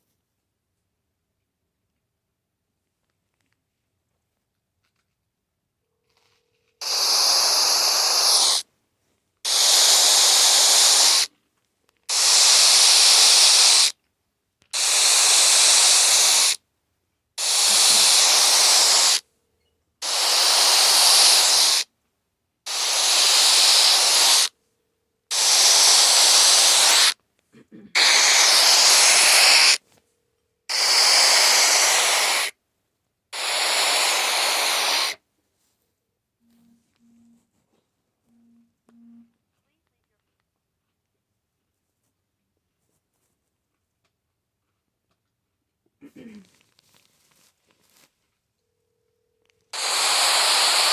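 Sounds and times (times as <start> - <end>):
phone static bursts: 49.8 - 50.9.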